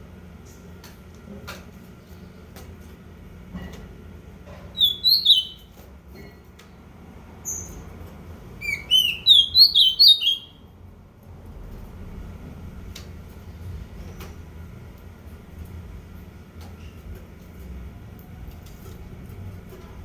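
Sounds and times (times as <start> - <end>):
low background hum: 0.0 - 20.0
bird chirping: 4.8 - 5.7, 8.6 - 10.6.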